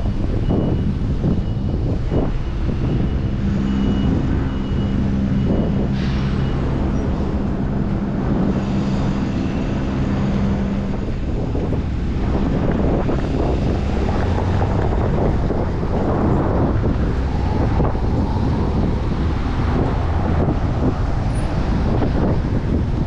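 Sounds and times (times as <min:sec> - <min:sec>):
traffic noise: 0:00.0 - 0:23.0
vehicle engine hum: 0:00.0 - 0:23.0
wind rumble on microphone: 0:00.0 - 0:23.0
faint high beeping: 0:00.4 - 0:07.8.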